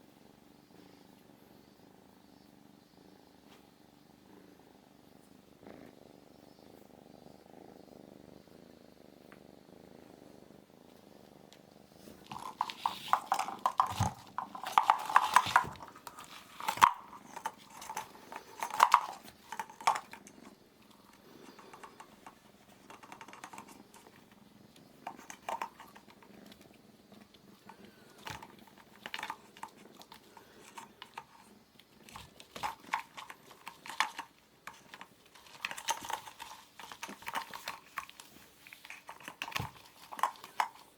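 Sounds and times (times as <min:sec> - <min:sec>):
kitten purring: 0:00.0 - 0:40.9
sharp clicks and rattles: 0:12.2 - 0:24.4, 0:25.0 - 0:26.6, 0:27.5 - 0:40.9.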